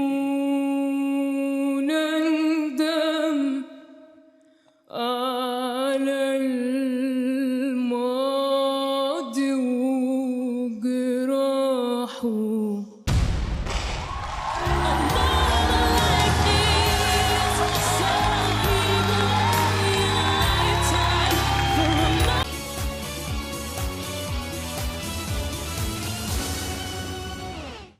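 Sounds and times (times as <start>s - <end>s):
woman singing unaccompanied: 0.0s - 3.8s, 4.9s - 13.0s, 14.7s - 22.5s.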